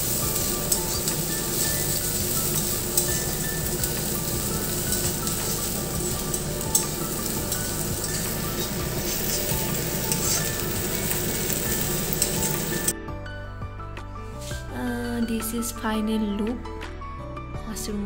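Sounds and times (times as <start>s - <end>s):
food sizzling in oil: 0.0s - 12.9s
spatula scraping and tapping pan: 0.4s - 12.9s.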